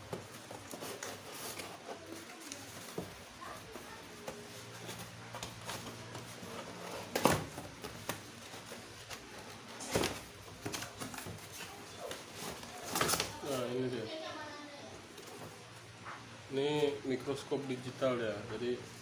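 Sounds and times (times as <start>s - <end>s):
packaging rustling and clicking: 0.0s - 13.6s.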